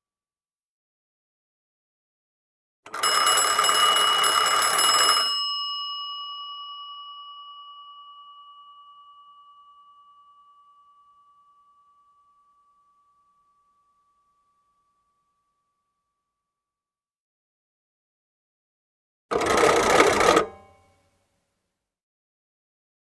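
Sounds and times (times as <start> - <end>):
telephone bell ringing: 2.9 - 11.4.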